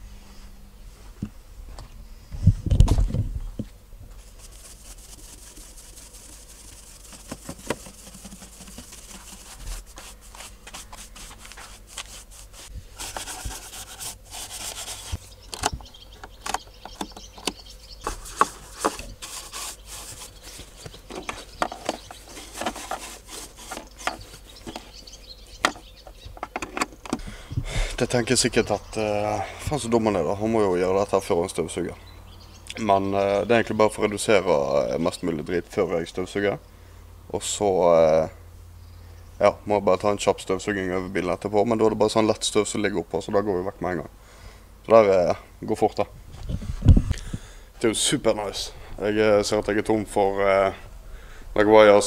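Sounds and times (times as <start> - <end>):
brush rubbing plastic vent: 4.1 - 15.4, 16.9 - 27.1.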